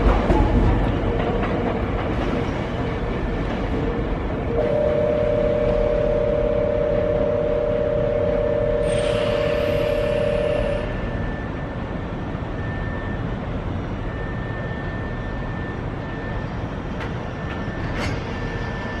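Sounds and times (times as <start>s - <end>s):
electric train rumbling: 0.0s - 19.0s
two-note tone: 4.6s - 11.1s.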